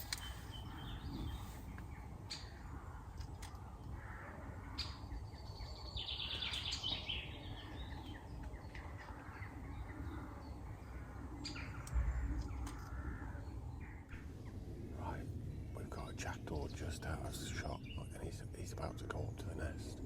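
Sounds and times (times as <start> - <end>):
jackdaws calling: 0.0 - 15.2.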